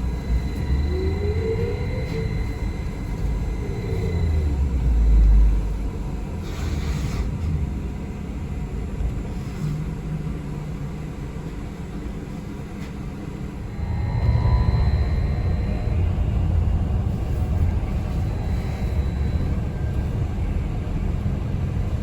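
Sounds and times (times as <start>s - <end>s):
bus engine rumble: 0.0s - 22.0s.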